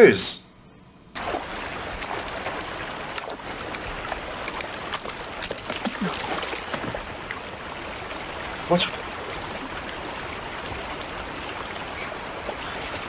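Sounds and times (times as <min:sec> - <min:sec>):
river rushing: 0:08.5 - 0:09.5.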